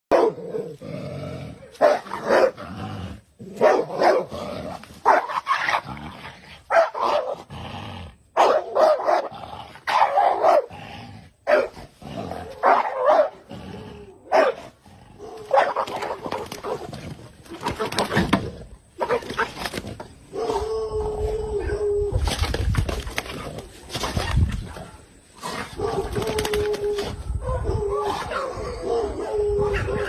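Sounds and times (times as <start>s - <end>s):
dog barking: 0.1s - 0.4s, 1.8s - 2.6s, 3.6s - 4.3s, 5.0s - 5.4s, 6.7s - 7.4s, 8.4s - 9.3s, 9.9s - 10.7s, 11.5s - 11.8s, 12.6s - 13.4s, 14.3s - 16.2s, 27.4s - 30.0s.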